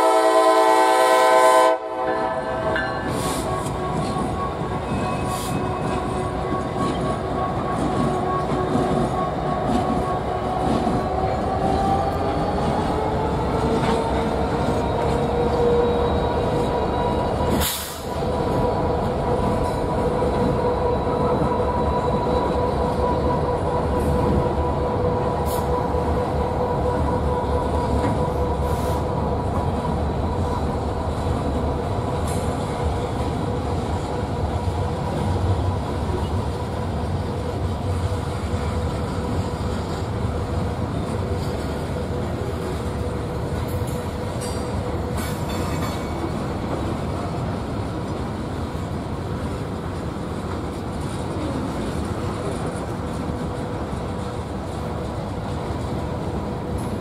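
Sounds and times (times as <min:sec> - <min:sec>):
freight train cars rumbling: 0:00.0 - 0:57.0
wheel squeal on rails: 0:02.8 - 0:29.1.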